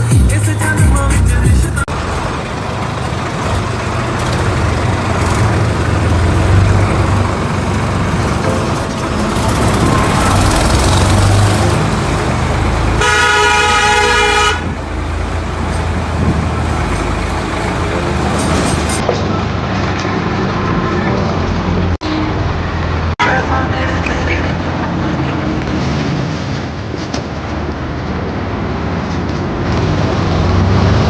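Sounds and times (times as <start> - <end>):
tractor diesel engine running: 0.0 - 29.6
horn: 13.0 - 14.7.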